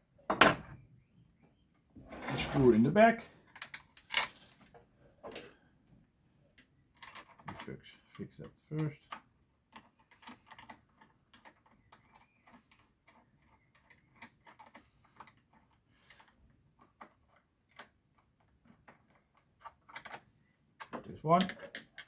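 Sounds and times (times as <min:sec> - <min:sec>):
hand tools clicking and tapping: 0:20.8 - 0:22.0.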